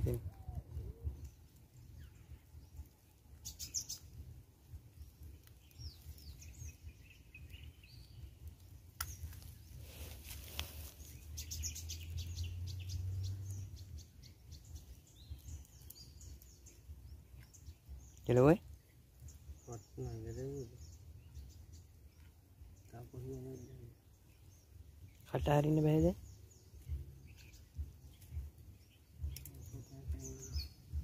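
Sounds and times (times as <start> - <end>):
birds chirping and whistling: 0.0 - 31.0
low rumble: 26.2 - 31.0.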